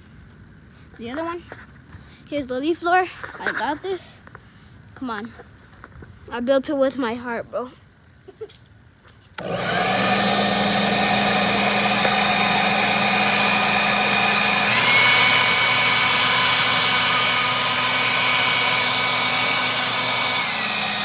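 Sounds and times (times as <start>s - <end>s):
leaf blower running: 9.4s - 21.0s.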